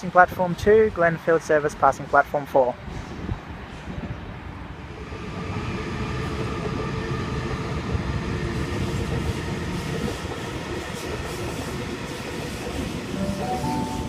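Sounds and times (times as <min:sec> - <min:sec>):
train wheels rumbling on rail: 0:02.8 - 0:14.0.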